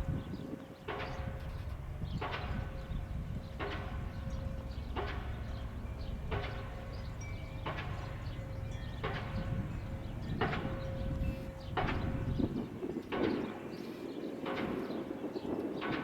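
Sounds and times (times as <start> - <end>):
steady low rumble: 1.1 - 13.0.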